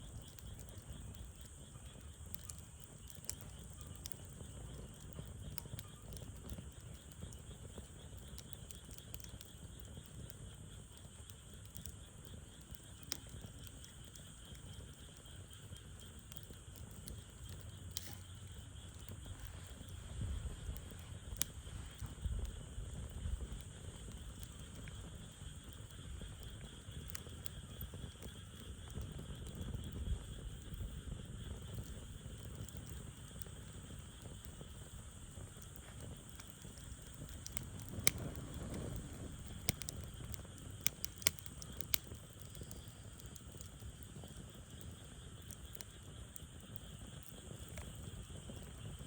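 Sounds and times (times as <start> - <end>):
campfire crackling and popping: 0.0 - 49.0
high insect chirr: 9.4 - 49.0.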